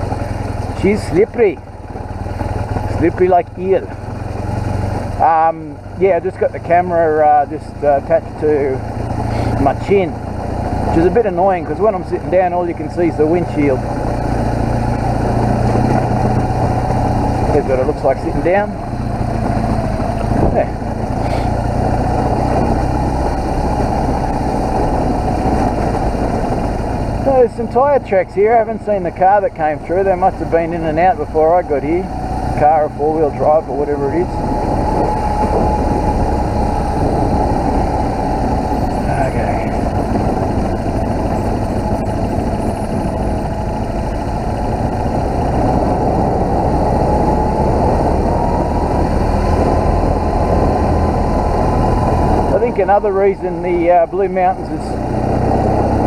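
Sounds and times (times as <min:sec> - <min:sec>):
motorcycle engine running: 0:00.0 - 0:56.0
road noise: 0:00.0 - 0:56.0
wind noise: 0:00.0 - 0:56.0.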